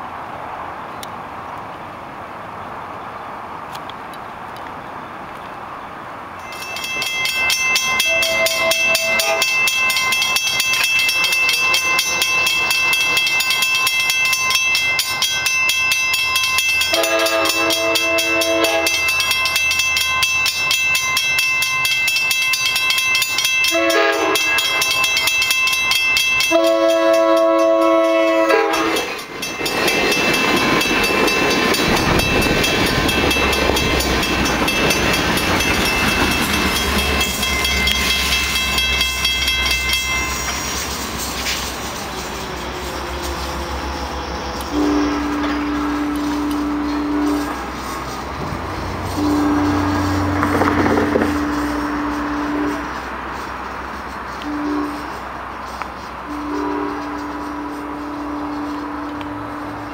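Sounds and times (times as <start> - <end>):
train rumbling: 0.0 - 59.9
crossing warning bells ringing: 6.3 - 59.9
train air horn blasts: 8.0 - 9.6, 16.9 - 19.2, 23.7 - 25.2, 26.5 - 29.2, 41.2 - 53.3, 54.4 - 55.3, 56.2 - 59.9.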